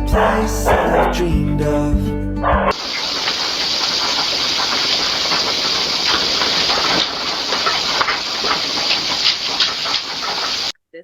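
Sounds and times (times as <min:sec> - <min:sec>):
faint ticks: 0:02.7 - 0:10.7
running water hissing: 0:02.7 - 0:10.8.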